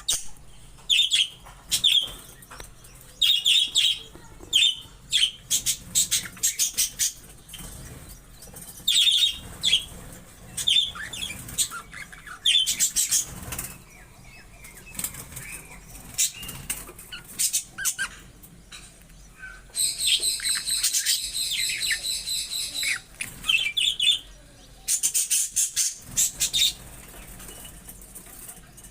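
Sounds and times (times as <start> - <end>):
budgerigars chirping: 0.0 - 18.3, 19.3 - 27.6
wings fluttering: 5.4 - 13.9, 14.6 - 18.3, 25.6 - 28.9.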